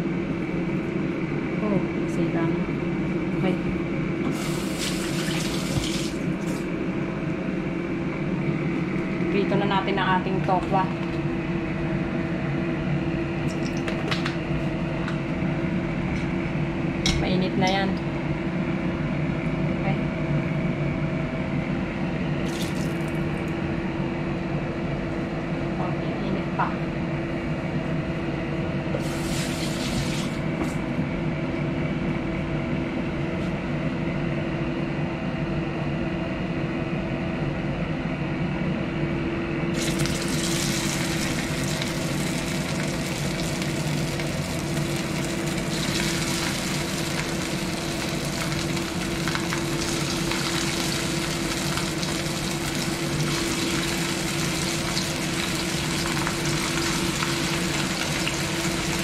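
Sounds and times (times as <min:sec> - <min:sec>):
steady low hum: 0:00.0 - 0:04.9, 0:05.9 - 0:59.0
tofu sizzling in hot oil: 0:04.3 - 0:06.2, 0:29.0 - 0:30.4, 0:39.8 - 0:59.0.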